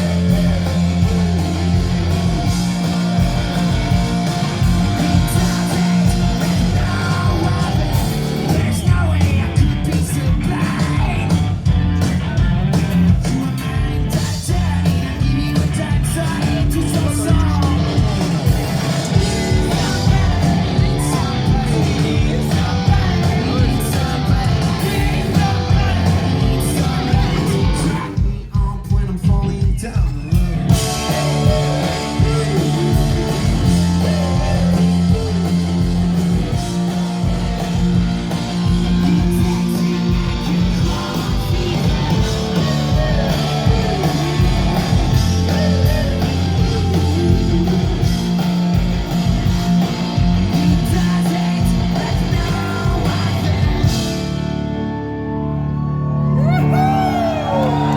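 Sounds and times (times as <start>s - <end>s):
person singing: 0.0s - 1.4s, 5.0s - 11.4s, 19.2s - 36.2s, 38.7s - 48.4s, 50.5s - 54.3s
rock band playing live: 0.0s - 57.9s.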